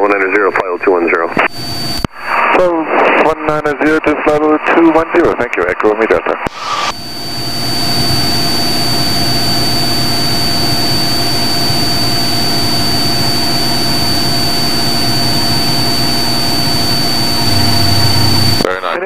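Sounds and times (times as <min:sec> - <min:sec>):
thin high whine: 0:01.3 - 0:03.3, 0:06.4 - 0:18.7
aircraft engine and propeller droning: 0:06.6 - 0:18.6.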